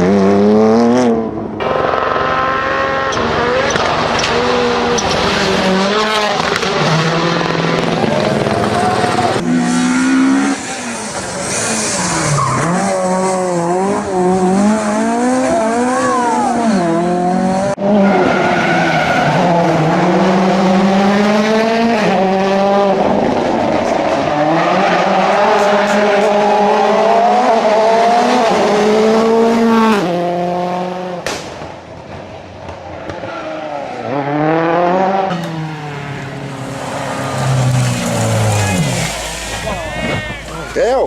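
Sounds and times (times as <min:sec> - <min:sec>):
rally car engines revving: 0:00.0 - 0:41.0.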